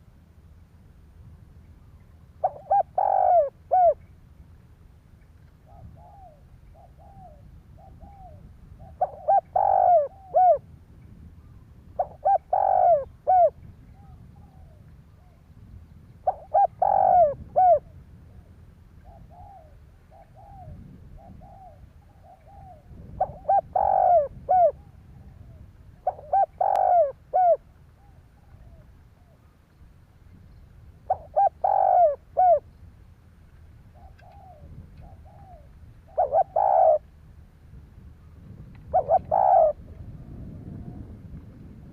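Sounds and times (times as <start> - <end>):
dove cooing: 2.4 - 4.0, 5.6 - 10.7, 12.0 - 15.4, 16.2 - 29.5, 31.0 - 32.7, 33.9 - 37.1, 38.4 - 41.2.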